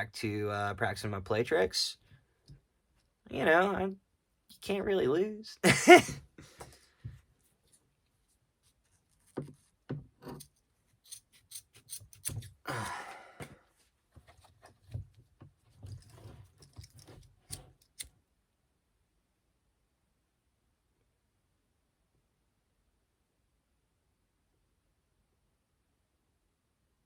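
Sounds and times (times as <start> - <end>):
small clicks and rustles: 13.7 - 18.2.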